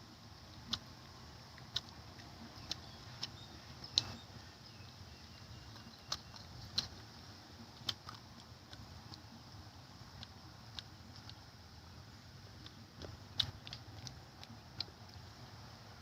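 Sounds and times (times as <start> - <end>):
faint steady hiss: 0.0 - 16.0
sharp clicks and light taps: 0.5 - 0.9, 1.5 - 4.2, 7.7 - 9.3, 10.1 - 11.5, 12.6 - 15.2.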